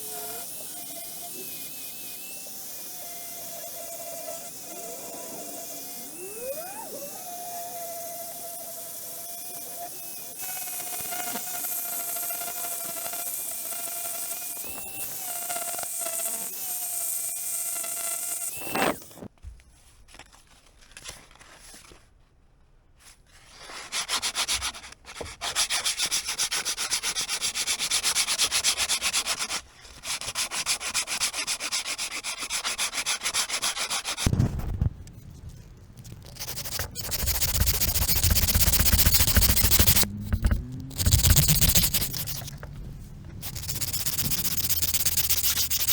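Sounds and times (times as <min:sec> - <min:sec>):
abrasive rasping on wood: 0:36.2 - 0:42.6, 0:43.3 - 0:45.9
electric sander whining: 0:36.3 - 0:45.9.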